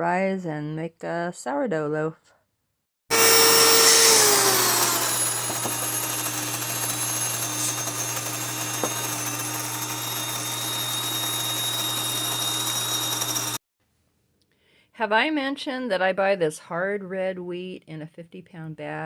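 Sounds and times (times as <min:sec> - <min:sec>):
grain mill motor whine: 0:03.1 - 0:13.6.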